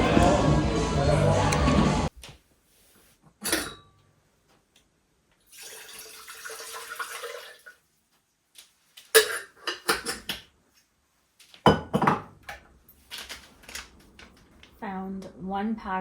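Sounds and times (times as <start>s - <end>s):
dishes clinking: 3.4s - 4.0s, 9.1s - 10.4s, 11.7s - 12.3s
water running into vessel: 5.5s - 7.8s.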